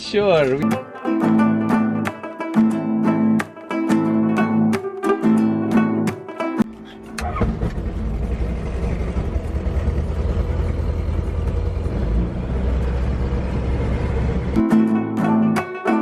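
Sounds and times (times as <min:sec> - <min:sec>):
guitar music: 0:00.0 - 0:09.3, 0:12.5 - 0:16.0.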